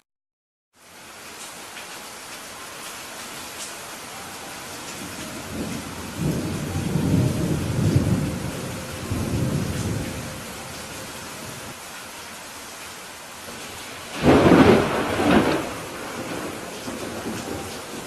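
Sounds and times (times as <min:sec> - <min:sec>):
steady rain falling: 0:00.7 - 0:18.0
thunder rumbling: 0:04.7 - 0:11.8, 0:13.5 - 0:18.0.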